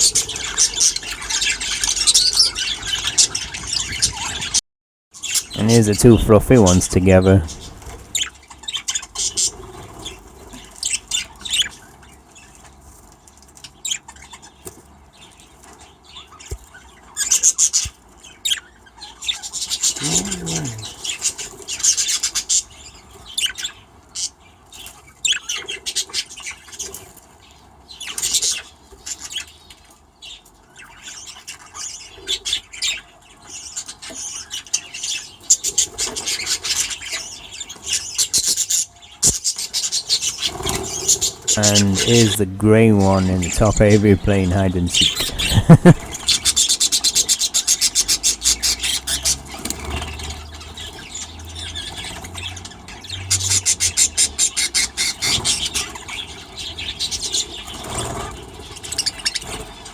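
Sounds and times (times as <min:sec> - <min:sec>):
budgerigars chirping: 0:00.0 - 0:04.6, 0:43.0 - 0:59.9.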